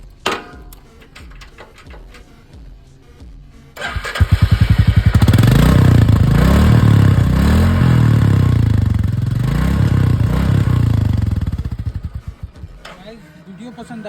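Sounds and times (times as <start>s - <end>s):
motorcycle engine starting and revving: 3.8s - 13.9s.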